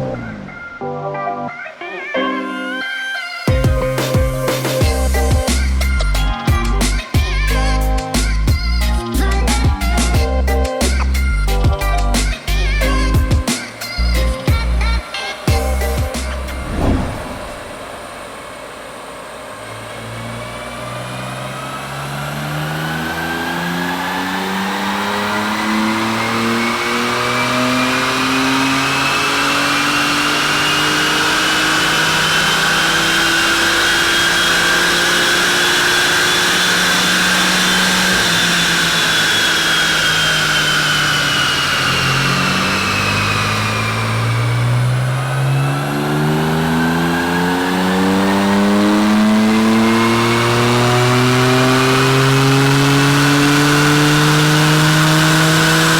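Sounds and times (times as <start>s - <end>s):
high whine: 15.6s - 20.3s
car engine revving on dyno: 15.8s - 55.9s.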